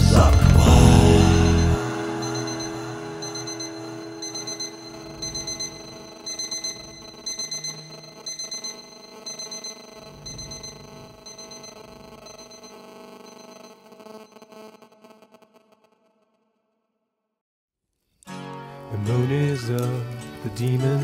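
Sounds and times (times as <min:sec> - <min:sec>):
digital alarm clock beeping: 0:00.4 - 0:13.8.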